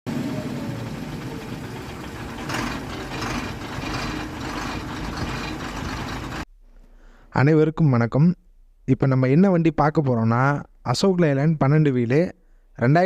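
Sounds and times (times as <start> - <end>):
diesel truck engine running: 0.1 - 6.5.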